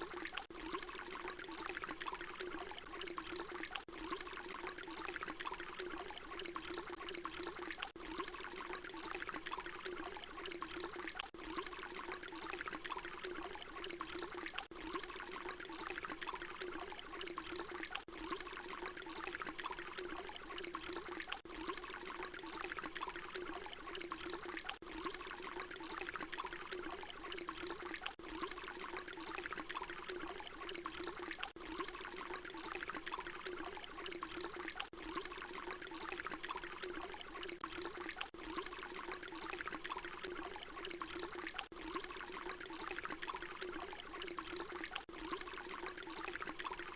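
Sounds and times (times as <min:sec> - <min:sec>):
water pouring into water: 0:00.0 - 0:46.9.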